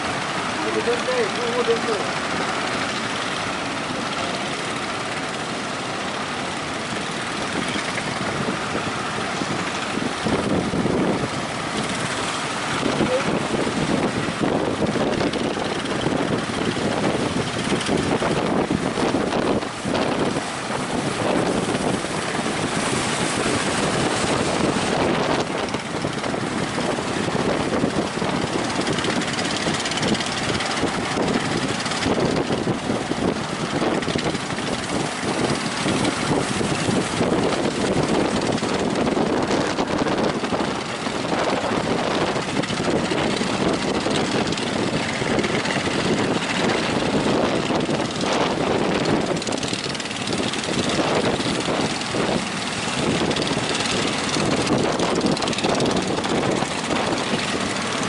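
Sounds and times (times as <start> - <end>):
heavy surf rushing: 0.0 - 58.0
strong wind on microphone: 0.0 - 58.0.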